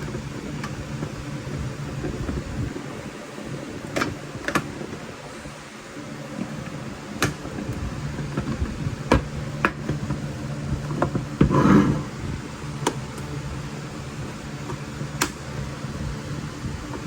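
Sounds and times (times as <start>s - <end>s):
steady low hum: 0.0s - 17.0s
rough burst of noise: 11.4s - 12.5s.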